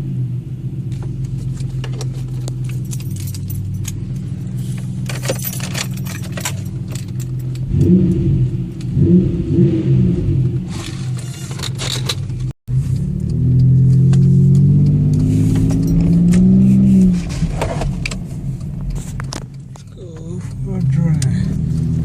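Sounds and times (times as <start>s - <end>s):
car engine droning: 0.0s - 22.0s
metallic clicking and jingling: 2.3s - 4.4s, 5.0s - 7.7s.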